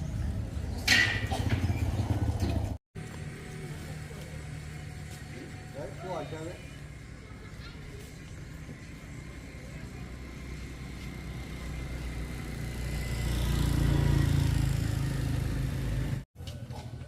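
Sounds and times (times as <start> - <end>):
vehicle engine running: 0.0 - 16.2.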